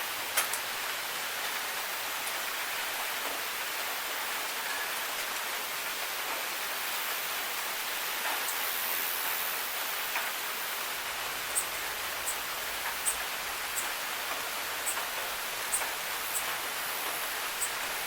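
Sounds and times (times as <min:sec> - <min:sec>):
steady rain hiss: 0:00.0 - 0:18.0
sharp raindrop ticks: 0:00.3 - 0:00.7, 0:11.4 - 0:18.0.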